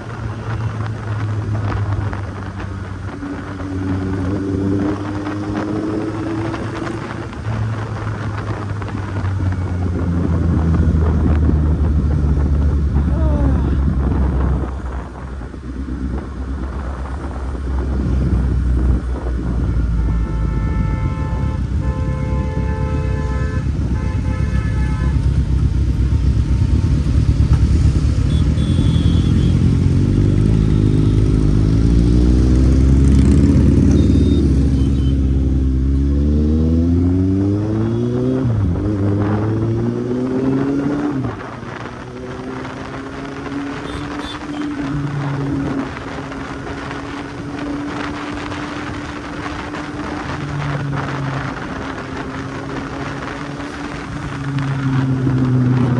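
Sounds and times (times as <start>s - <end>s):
motorcycle engine accelerating: 0.0s - 19.7s, 22.6s - 55.9s
vehicle horn blasts: 19.6s - 25.5s, 28.2s - 29.8s, 33.9s - 35.4s, 43.7s - 44.8s.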